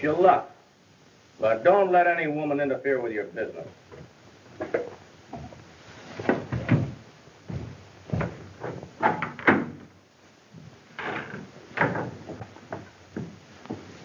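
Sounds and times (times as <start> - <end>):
knocks and bumps on wood: 6.2 - 9.9, 11.8 - 13.9.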